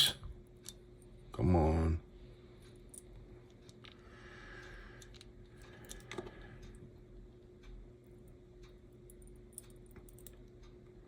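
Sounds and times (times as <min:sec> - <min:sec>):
light clicks of small tools: 0:07.6 - 0:10.9.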